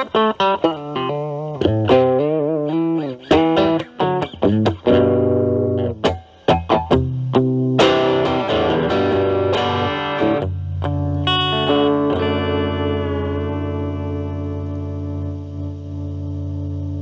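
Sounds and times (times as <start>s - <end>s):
distorted electric guitar: 0.0s - 17.0s.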